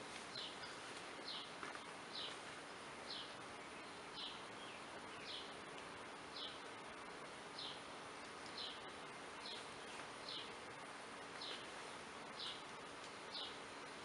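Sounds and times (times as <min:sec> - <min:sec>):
bees humming: 0:00.0 - 0:14.0.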